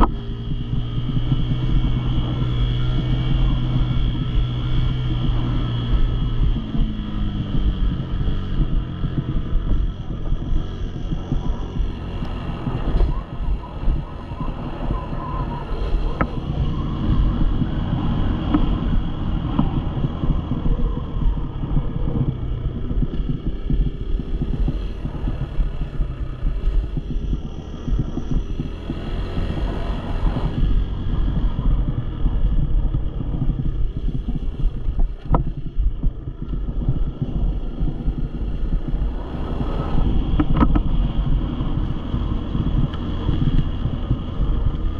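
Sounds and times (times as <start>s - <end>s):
dirt bike engine running: 0.0s - 44.9s
wind buffeting microphone: 0.0s - 44.9s.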